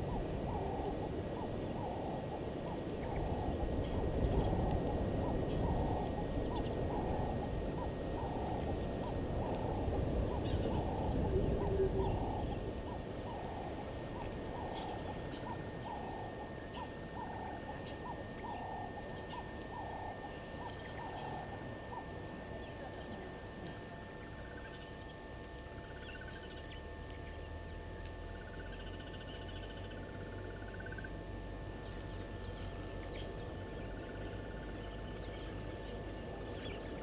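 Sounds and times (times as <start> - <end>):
low rumble: 0.0 - 17.3.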